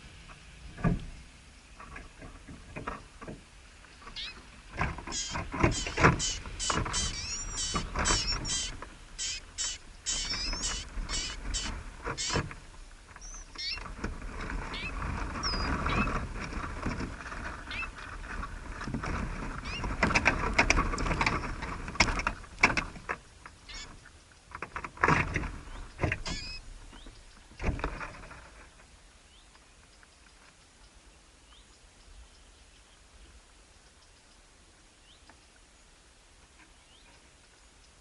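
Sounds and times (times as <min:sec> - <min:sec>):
rustling and scratching: 0:00.0 - 0:29.0
small birds chirping: 0:03.0 - 0:13.9, 0:14.6 - 0:16.2, 0:17.6 - 0:18.0, 0:19.6 - 0:20.0, 0:23.1 - 0:24.6, 0:25.5 - 0:27.6, 0:29.2 - 0:38.0.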